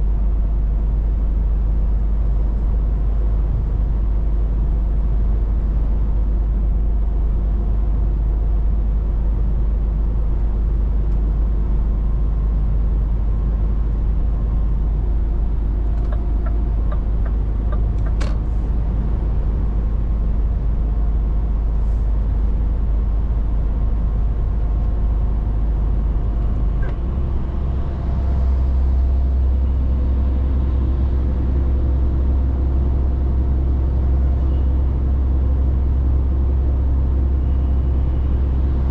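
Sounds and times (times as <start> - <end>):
truck diesel engine running: 12.8 - 38.9.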